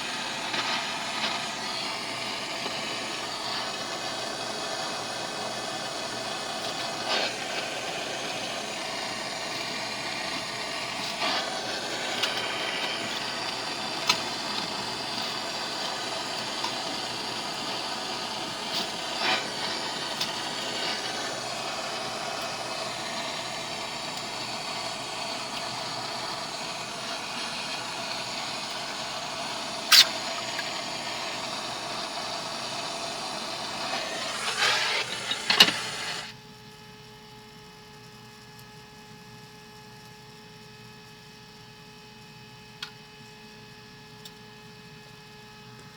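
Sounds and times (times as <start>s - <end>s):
arc welding sizzling hiss: 0.0s - 36.4s
welding pops: 29.8s - 31.1s.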